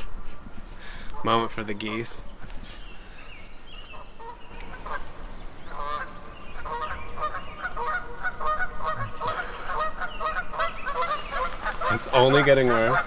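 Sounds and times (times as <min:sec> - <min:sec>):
geese honking: 0:03.9 - 0:13.0.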